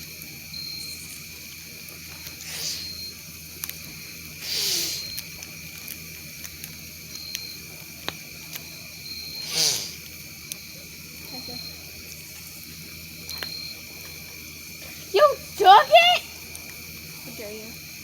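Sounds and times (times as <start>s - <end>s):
crickets chirping: 0.0s - 18.0s
campfire popping: 1.2s - 18.0s
hissing gusts: 9.4s - 10.3s, 14.7s - 17.7s.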